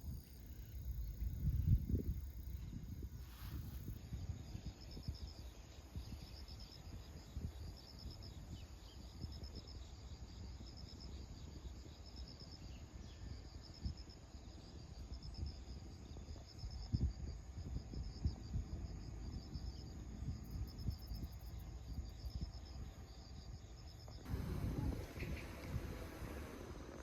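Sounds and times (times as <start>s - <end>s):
insects chirping in pulsed trills: 0.0s - 27.0s
steady low rumble: 17.5s - 27.0s.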